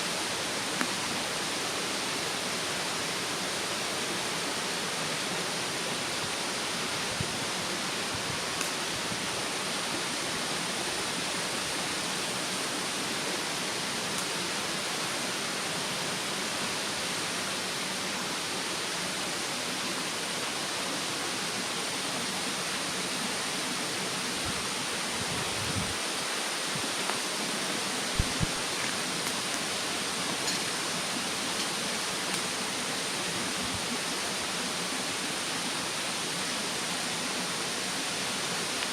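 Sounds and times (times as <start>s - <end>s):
mountain stream rushing: 0.0s - 38.9s
wood fire crackling and popping: 28.1s - 29.4s.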